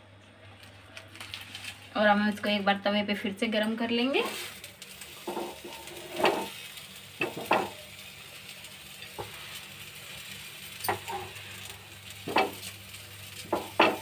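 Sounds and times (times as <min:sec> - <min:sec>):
pastry sizzling on a griddle: 0:00.6 - 0:14.0
knocks and scrapes on pan: 0:05.3 - 0:06.5, 0:12.3 - 0:12.6, 0:13.5 - 0:14.0.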